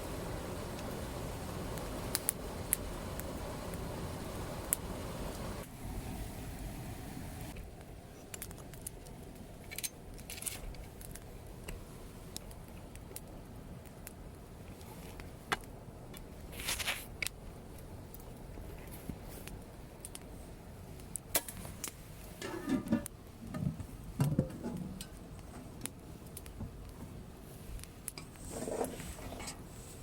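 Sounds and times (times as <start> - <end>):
campfire crackling: 0.0 - 30.0
sharp pops and snaps: 0.7 - 3.9, 4.6 - 5.7, 7.6 - 9.2, 10.1 - 18.3, 19.4 - 20.3, 25.3 - 27.0.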